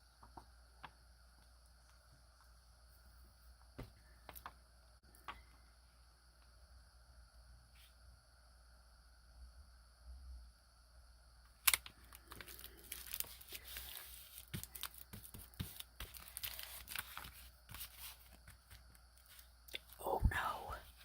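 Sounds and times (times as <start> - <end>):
paper crinkling: 11.7 - 19.5.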